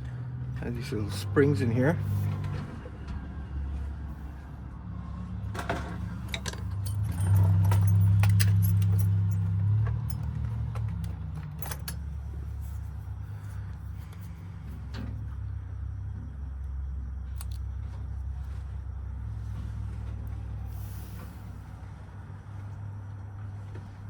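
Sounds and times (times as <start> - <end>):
low steady hum: 0.0 - 24.0
metallic clicks of lock parts: 5.6 - 12.8, 17.3 - 17.6.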